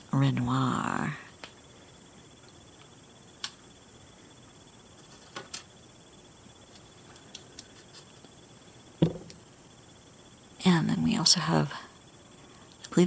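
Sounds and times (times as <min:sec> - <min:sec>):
low steady hiss: 0:08.3 - 0:13.0.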